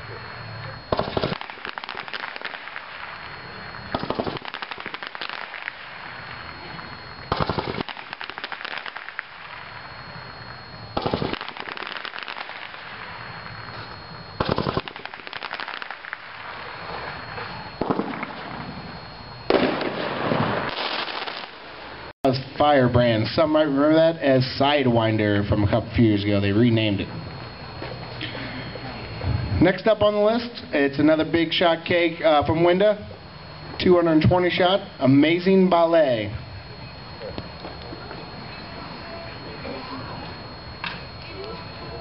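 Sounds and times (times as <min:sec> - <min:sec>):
firework volleys of reports: 0:00.0 - 0:42.0
firework cake pops and crackles: 0:00.9 - 0:05.9, 0:06.5 - 0:09.8, 0:11.0 - 0:12.8, 0:14.4 - 0:16.3, 0:19.5 - 0:21.6.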